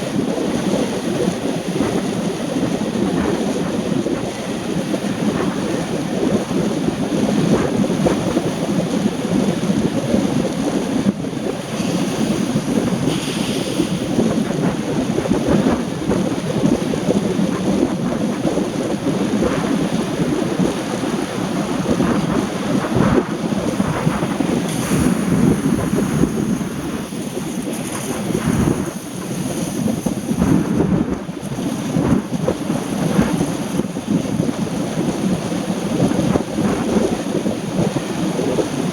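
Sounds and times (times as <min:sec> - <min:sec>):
tyres hissing on wet road: 0:11.8 - 0:14.4.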